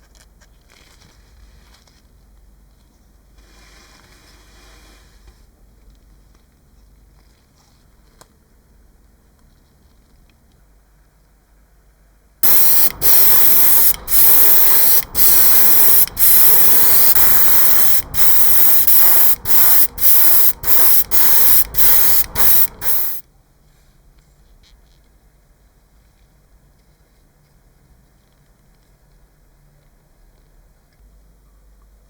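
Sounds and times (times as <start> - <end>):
paint spray gun hissing: 12.4 - 23.2.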